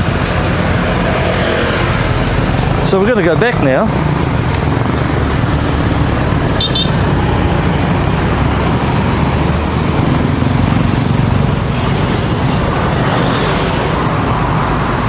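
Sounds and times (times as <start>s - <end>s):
street traffic: 0.0s - 15.0s
short high beeps: 6.6s - 7.0s, 9.5s - 13.1s.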